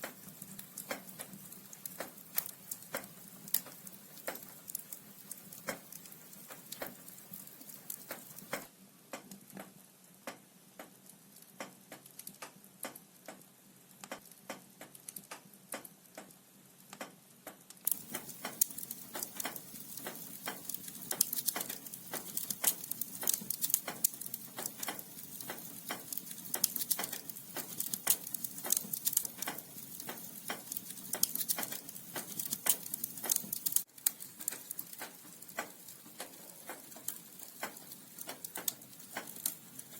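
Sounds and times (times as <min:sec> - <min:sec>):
wood fire crackling: 0:00.0 - 0:08.7, 0:17.8 - 0:39.9.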